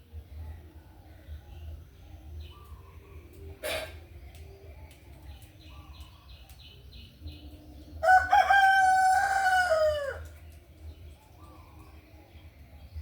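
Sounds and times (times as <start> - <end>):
rooster crowing: 8.0 - 10.3.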